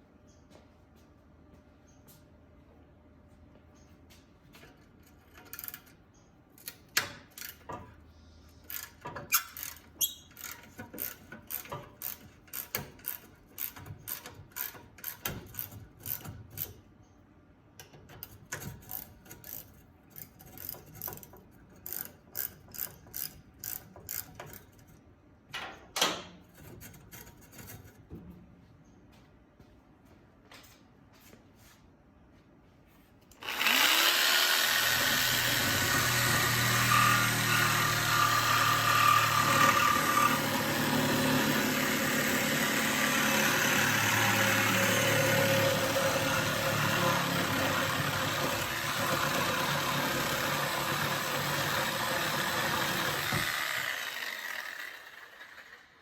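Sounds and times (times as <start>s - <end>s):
ratchet wrench clicking: 8.6s - 16.8s, 18.2s - 24.8s
ratchet wrench rasp: 8.6s - 16.8s, 18.2s - 24.9s.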